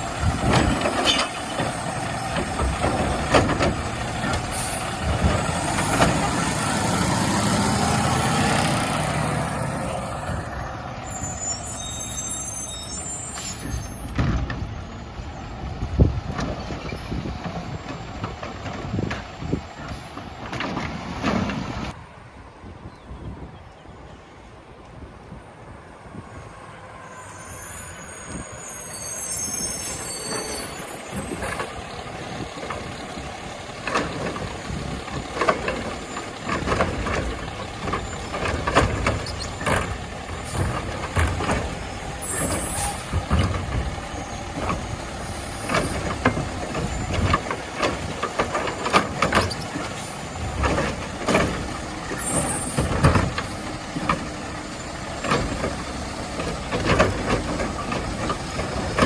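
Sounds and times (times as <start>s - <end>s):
carts banging and clattering: 0.0s - 10.6s, 13.2s - 22.0s, 30.3s - 59.0s
brakes squealing: 0.0s - 22.0s, 26.2s - 59.0s
diesel truck engine: 0.0s - 22.2s, 25.7s - 59.0s
air brake hisses: 11.2s - 14.1s.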